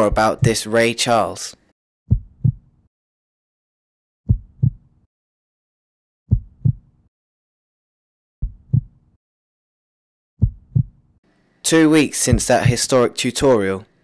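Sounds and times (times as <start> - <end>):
heartbeat double thump: 2.1 - 2.7, 4.3 - 4.9, 6.3 - 6.9, 8.4 - 9.0, 10.4 - 11.0, 12.3 - 12.8.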